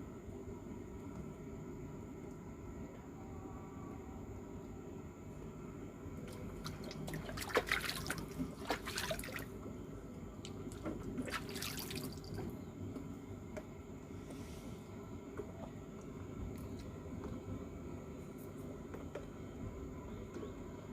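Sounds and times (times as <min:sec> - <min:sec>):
water splashing and dripping: 0:06.3 - 0:09.5, 0:10.4 - 0:12.4.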